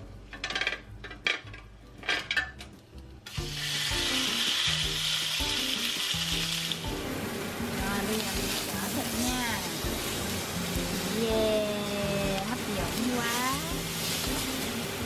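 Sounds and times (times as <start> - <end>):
steak sizzling on grill: 3.2 - 15.0.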